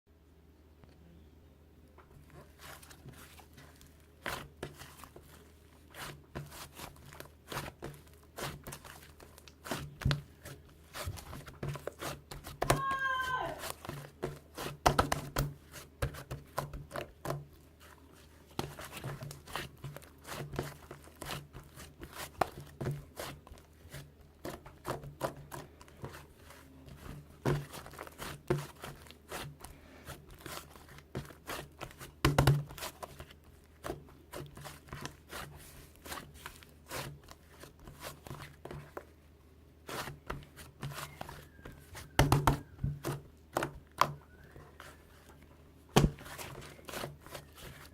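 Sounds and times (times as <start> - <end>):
faint low hum: 0.1 - 14.5
paper or plastic crinkling: 2.2 - 12.6, 46.0 - 47.9.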